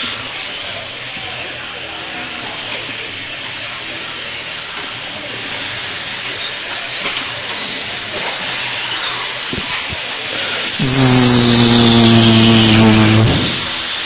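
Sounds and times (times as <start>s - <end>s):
rc truck motors hissing: 10.8s - 14.0s.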